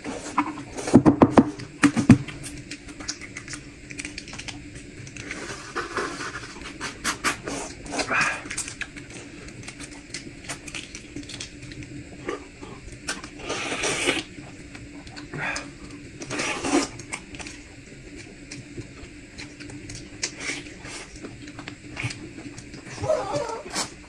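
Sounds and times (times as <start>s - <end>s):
chewing clicks and smacks: 2.2s - 5.4s, 8.4s - 11.9s.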